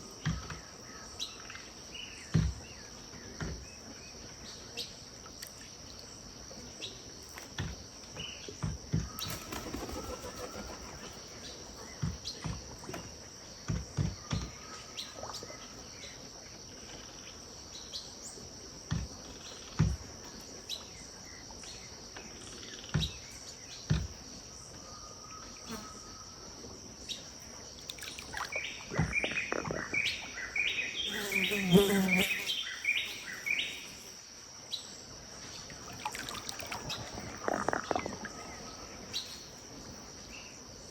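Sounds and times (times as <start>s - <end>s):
birds calling: 9.1s - 12.5s, 27.0s - 40.6s
bird rapid repeated calls: 9.2s - 12.0s, 28.0s - 34.2s
high-pitched insect drone: 27.9s - 34.2s.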